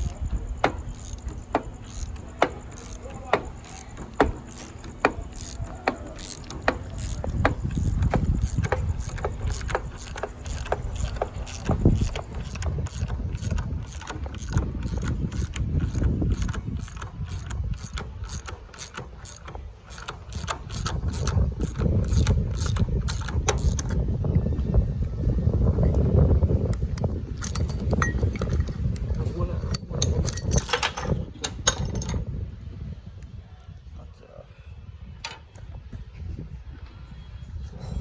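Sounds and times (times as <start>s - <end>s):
ratchet wrench clicking: 0.0s - 24.7s, 26.7s - 32.2s
low rumbling handling noise: 0.0s - 33.4s.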